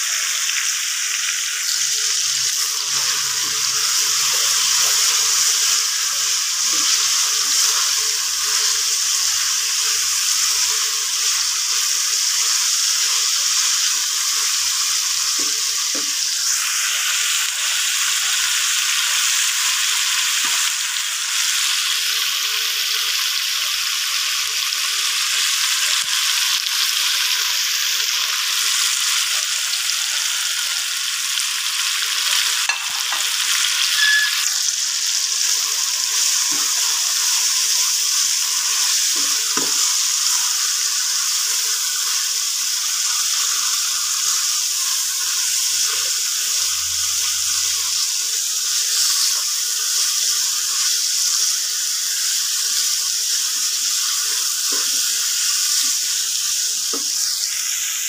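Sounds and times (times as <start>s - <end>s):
chicken sizzling in a pan: 0.0s - 58.0s
spatula stirring in a pan: 2.6s - 14.5s.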